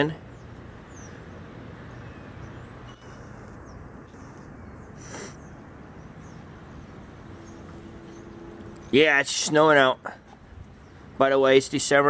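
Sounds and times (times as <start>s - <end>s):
short hiss: 5.0s - 5.4s.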